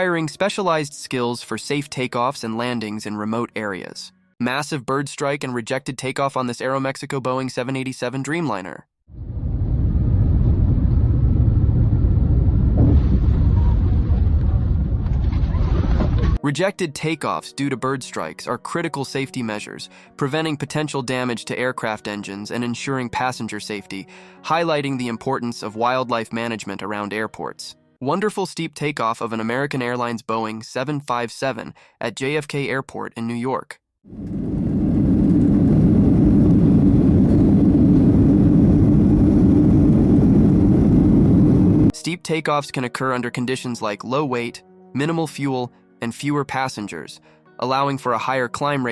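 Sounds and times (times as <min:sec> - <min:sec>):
jet airliner rumble on runway: 0:34.2 - 0:41.9.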